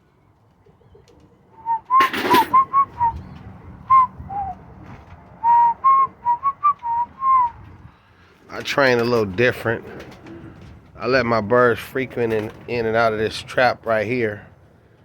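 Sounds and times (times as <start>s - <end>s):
person whistling: 1.6s - 3.2s, 3.9s - 4.6s, 5.4s - 7.6s.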